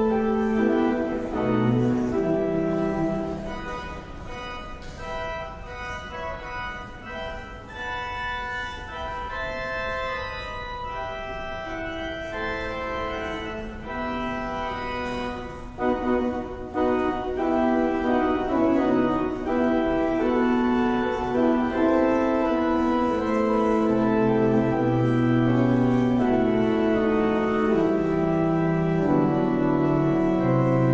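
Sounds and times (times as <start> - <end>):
low organ bass notes: 0.0 - 30.9
organ chords: 0.0 - 30.9.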